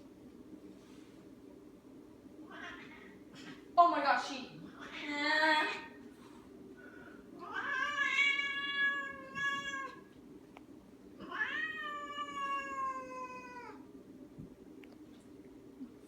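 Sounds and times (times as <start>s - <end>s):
cat yowling: 2.5s - 3.2s, 7.4s - 10.0s, 11.2s - 13.8s.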